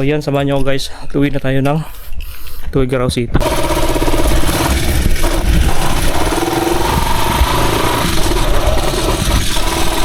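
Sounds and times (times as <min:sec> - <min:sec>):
motorcycle engine running: 0:03.4 - 0:10.0.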